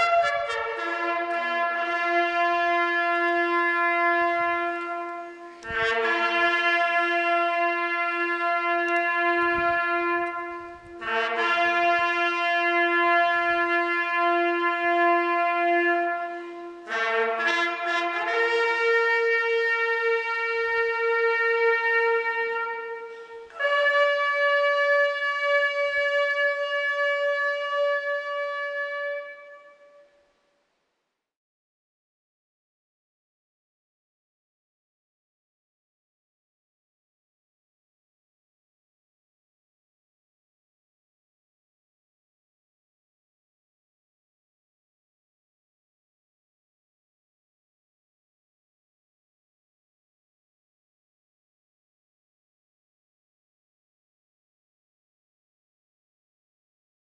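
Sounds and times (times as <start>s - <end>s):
brass slow melody: 0.0s - 30.6s.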